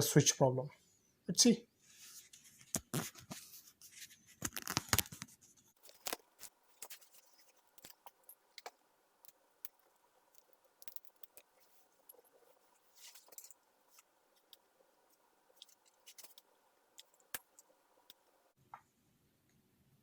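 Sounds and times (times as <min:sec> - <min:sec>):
tools clicking and snipping wiring: 0:05.8 - 0:18.5.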